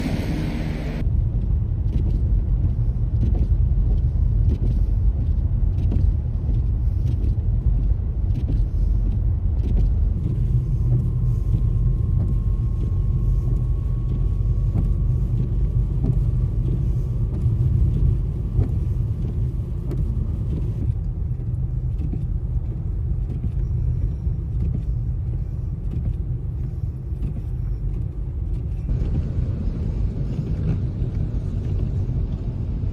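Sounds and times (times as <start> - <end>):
faint rising whine: 0.0 - 1.0
road vehicles rumbling: 0.0 - 32.9.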